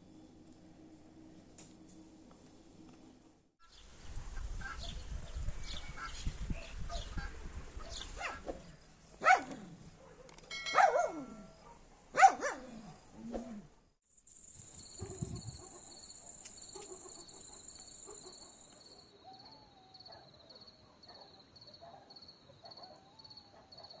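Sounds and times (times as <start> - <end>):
dog barking: 6.9 - 8.5, 9.2 - 12.8, 15.0 - 24.0
high insect drone: 14.0 - 19.1
crickets chirping: 14.0 - 24.0.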